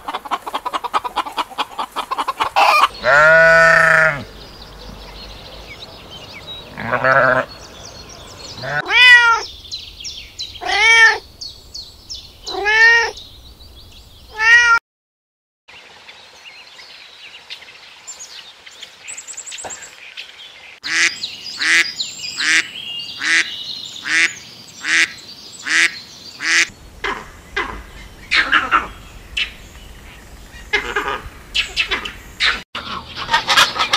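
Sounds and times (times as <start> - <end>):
duck quacking: 0.0 - 4.3, 6.7 - 7.5, 20.8 - 29.5, 30.7 - 33.9
animal calls rising and falling: 1.4 - 4.3.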